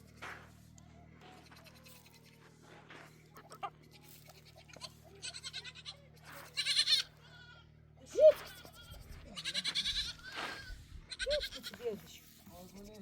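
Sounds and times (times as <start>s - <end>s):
goats bleating: 3.4s - 7.7s, 8.3s - 11.8s.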